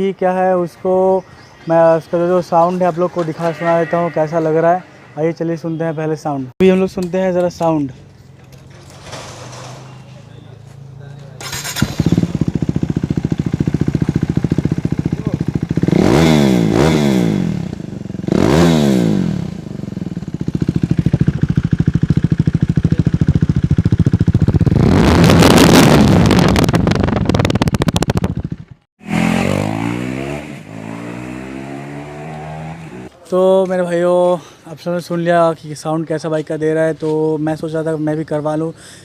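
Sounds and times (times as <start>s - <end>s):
motorcycle engine revving: 8.4s - 33.1s.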